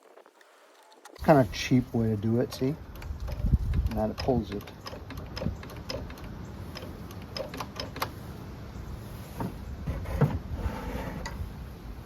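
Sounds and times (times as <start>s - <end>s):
tools and parts clicking: 2.5s - 8.2s.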